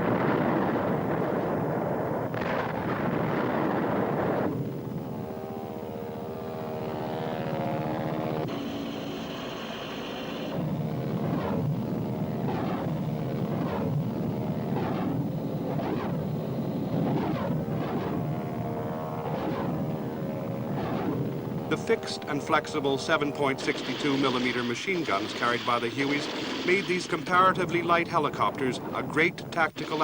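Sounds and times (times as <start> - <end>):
helicopter turbine and rotor: 0.0 - 30.0
high whine: 0.0 - 30.0
rhythmic rotor chop: 20.8 - 30.0.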